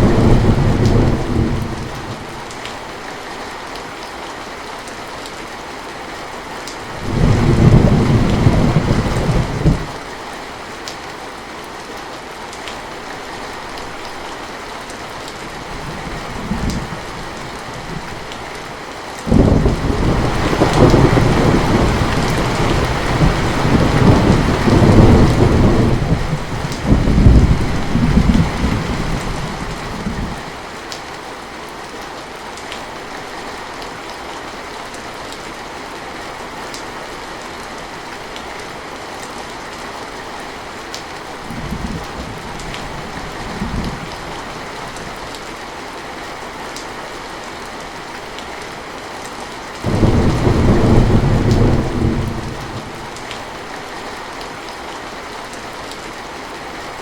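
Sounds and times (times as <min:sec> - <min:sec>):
thunder rumbling: 0:00.0 - 0:02.3, 0:07.0 - 0:10.0, 0:19.3 - 0:30.4, 0:49.8 - 0:53.6
heavy rain falling: 0:00.0 - 0:57.0.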